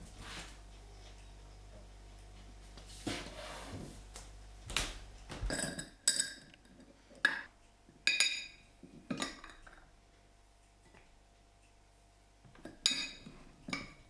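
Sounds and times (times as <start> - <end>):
soft rustling and handling: 0.0 - 5.8.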